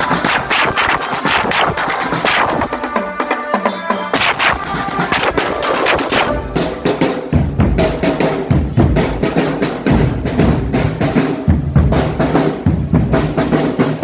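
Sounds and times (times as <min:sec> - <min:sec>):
snare drum rolls: 0:00.0 - 0:14.0
bass drum beats: 0:04.1 - 0:13.1.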